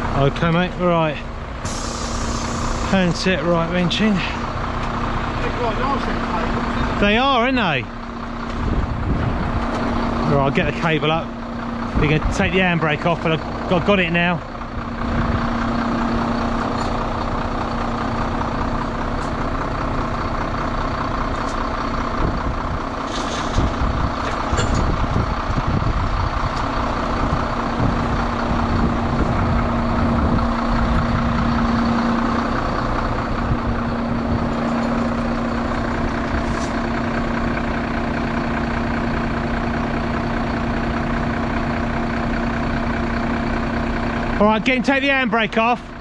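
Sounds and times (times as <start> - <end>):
hydraulic winch whine: 0.0 - 44.8
truck engine running: 0.0 - 46.0
brief hisses: 1.6 - 2.9.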